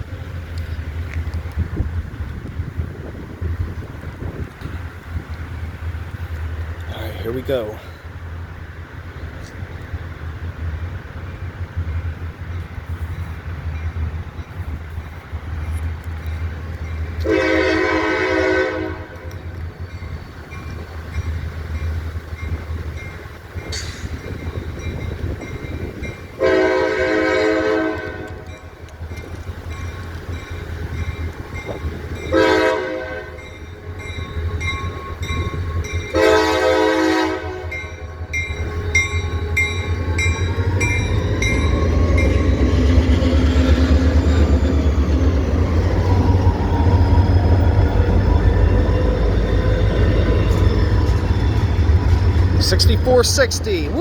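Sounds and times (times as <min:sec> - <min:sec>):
locomotive air horn blasts: 0:17.2 - 0:19.3, 0:26.4 - 0:28.4, 0:32.3 - 0:33.4, 0:36.1 - 0:37.9
wheels clicking over rail joints: 0:19.1 - 0:26.4, 0:27.9 - 0:32.3
engine rumbling: 0:37.4 - 0:54.0.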